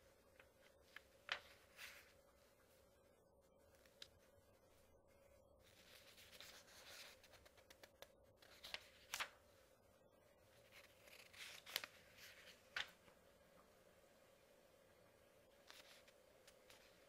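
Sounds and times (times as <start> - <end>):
faint steady hum: 0.0 - 17.0
paper pages turning: 0.2 - 2.6, 3.7 - 4.3, 5.6 - 9.5, 10.5 - 13.2, 15.5 - 17.0
crisp page flicks: 7.2 - 9.4, 10.9 - 13.0.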